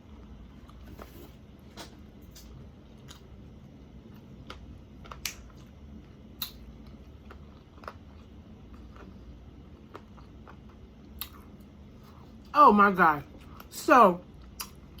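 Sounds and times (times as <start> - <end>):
wet chewing sounds: 4.1 - 12.5.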